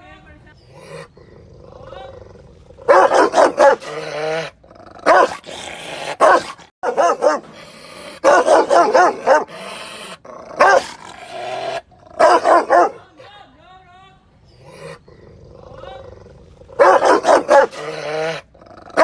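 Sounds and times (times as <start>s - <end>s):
dog growling: 0.6s - 13.0s, 14.5s - 19.0s
dog barking loudly: 2.8s - 5.5s, 6.1s - 9.7s, 10.4s - 11.4s, 12.1s - 13.1s, 16.7s - 19.0s.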